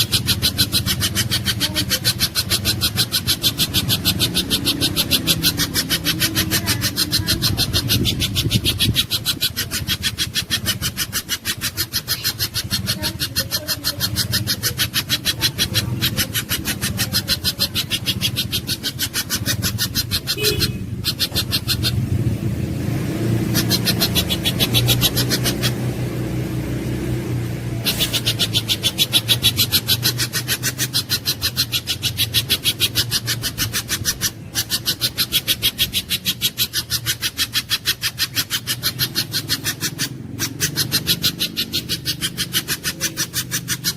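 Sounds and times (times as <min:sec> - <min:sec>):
bird calling sharp high notes: 0:00.0 - 0:22.2.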